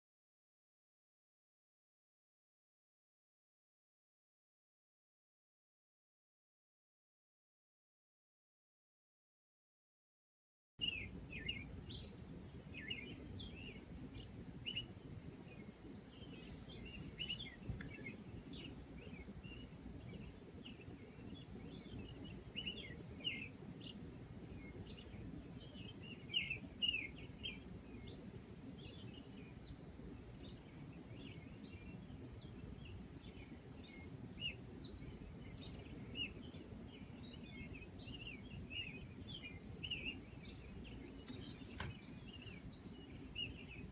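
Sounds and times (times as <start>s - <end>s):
low background noise: 10.8s - 43.9s
small birds chirping: 10.8s - 43.9s.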